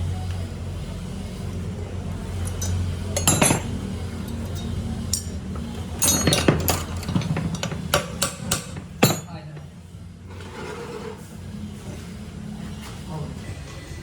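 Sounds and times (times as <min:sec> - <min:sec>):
steady low hum: 0:00.0 - 0:10.5
metal tools clinking: 0:02.4 - 0:05.4, 0:06.0 - 0:09.4.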